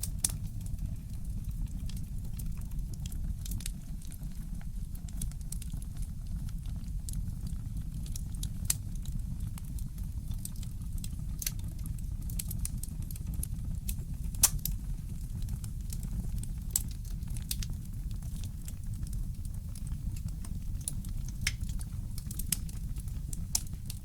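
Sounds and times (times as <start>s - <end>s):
fireplace crackling: 0.0s - 4.4s, 10.4s - 24.0s
steady low rumble: 13.1s - 24.0s.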